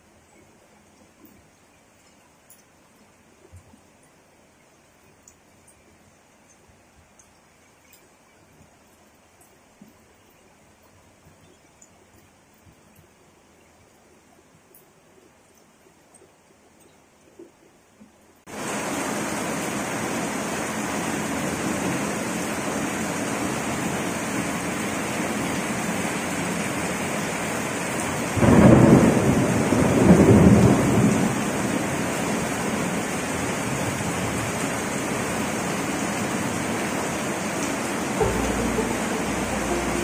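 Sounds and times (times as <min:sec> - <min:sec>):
heavy rain on paving: 0:18.4 - 0:40.0
thunder rumble: 0:28.4 - 0:31.4, 0:38.2 - 0:40.0.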